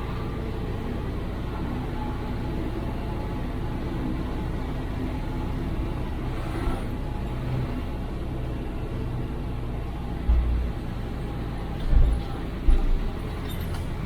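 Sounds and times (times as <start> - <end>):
truck diesel engine running: 0.0 - 14.0
heavy low thump: 10.2 - 10.8.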